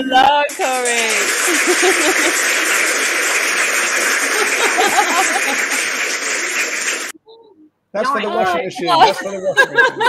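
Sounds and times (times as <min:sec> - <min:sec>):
crowd applause and cheering: 0:00.5 - 0:07.2
laughter: 0:01.5 - 0:02.4, 0:04.3 - 0:05.8, 0:08.8 - 0:10.0.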